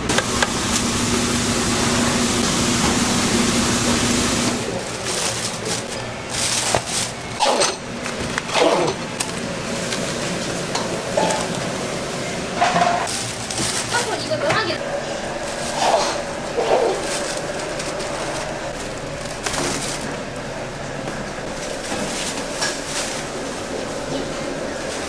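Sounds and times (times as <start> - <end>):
faint voices: 4.5 - 7.4.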